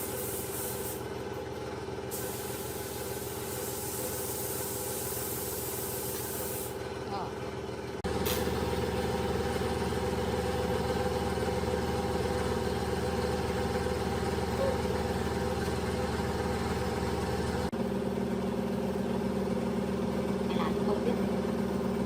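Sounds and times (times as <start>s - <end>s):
machine humming: 8.0s - 22.0s.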